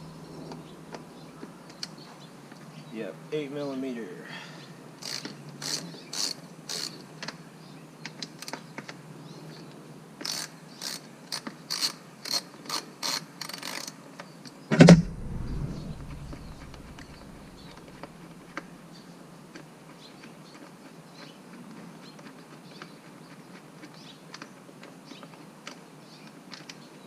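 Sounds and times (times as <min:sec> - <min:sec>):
loud thump: 0:14.7 - 0:17.9.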